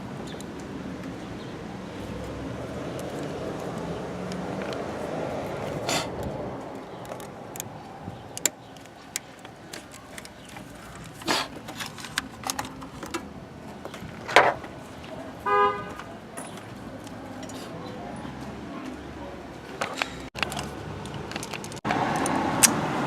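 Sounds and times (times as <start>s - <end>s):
scattered clicks and knocks: 19.8s - 22.8s.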